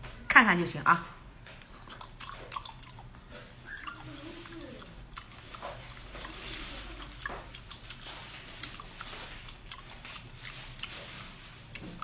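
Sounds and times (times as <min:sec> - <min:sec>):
wet chewing and biting: 0:01.6 - 0:12.0
mouth clicks and smacks: 0:01.7 - 0:06.4.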